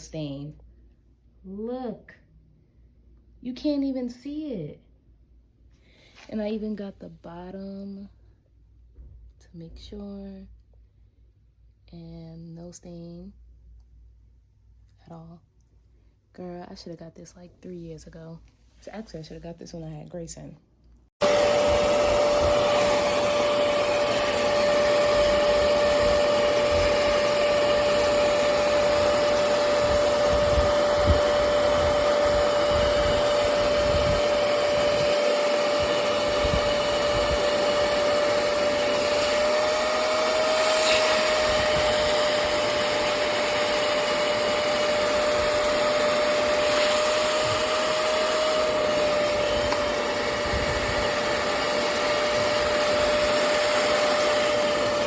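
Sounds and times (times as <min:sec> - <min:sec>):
spot cleaner suction motor whine: 0:21.2 - 0:55.0.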